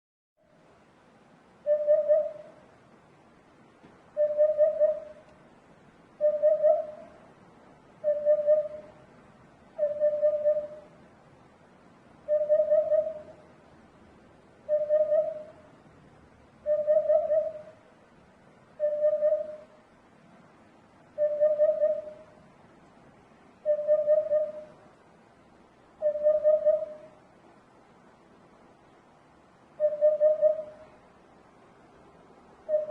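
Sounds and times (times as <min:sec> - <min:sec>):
hoopoe hooting call: 0:01.6 - 0:02.6, 0:04.2 - 0:05.3, 0:06.2 - 0:07.2, 0:08.0 - 0:09.0, 0:09.8 - 0:10.9, 0:12.3 - 0:13.4, 0:14.7 - 0:15.6, 0:16.6 - 0:17.8, 0:18.8 - 0:19.8, 0:21.2 - 0:22.4, 0:23.6 - 0:24.8, 0:26.0 - 0:27.2, 0:29.8 - 0:30.9, 0:32.7 - 0:32.9.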